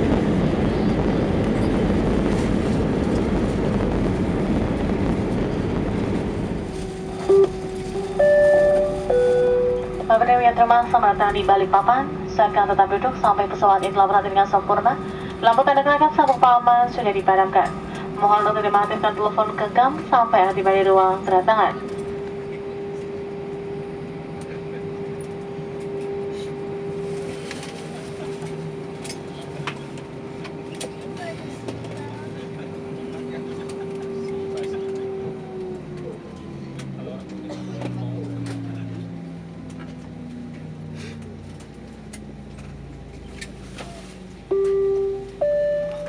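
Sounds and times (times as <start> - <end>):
steady hum with constant tone: 6.0 - 34.7
held electronic tones: 7.3 - 10.1, 44.5 - 46.0.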